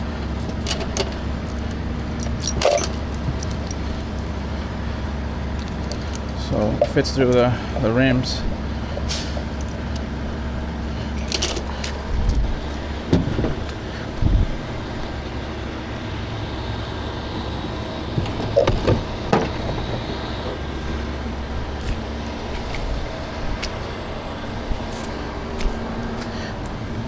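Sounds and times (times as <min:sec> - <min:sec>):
tow chain clinking: 0:00.0 - 0:04.7, 0:11.0 - 0:12.5, 0:17.7 - 0:21.6
low engine hum: 0:00.0 - 0:27.0.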